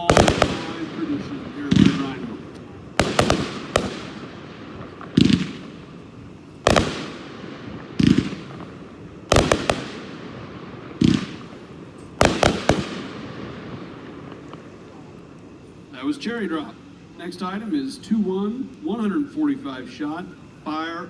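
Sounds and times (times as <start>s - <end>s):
firework cake bangs: 0.0s - 5.7s, 11.0s - 13.2s.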